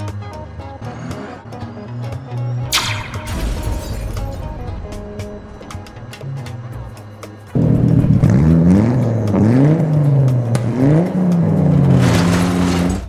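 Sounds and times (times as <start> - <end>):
engine revving: 0.0 - 3.4, 6.0 - 13.0
background music: 0.0 - 13.0.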